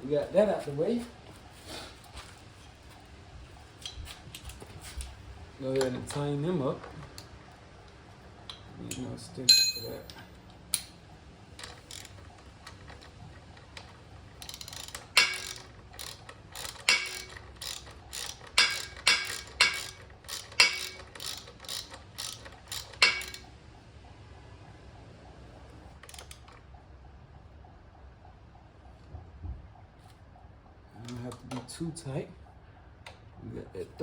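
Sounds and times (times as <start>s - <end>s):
ratchet wrench clicking: 11.6s - 23.5s.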